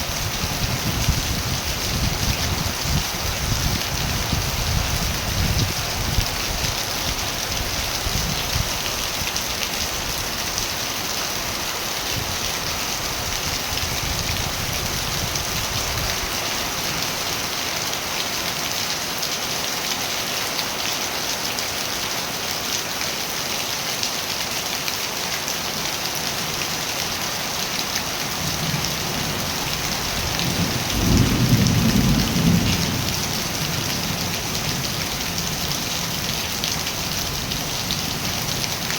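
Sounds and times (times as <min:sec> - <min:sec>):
heavy rain falling: 0:00.0 - 0:38.9
low rumble of thunder: 0:00.1 - 0:08.9, 0:28.4 - 0:36.0.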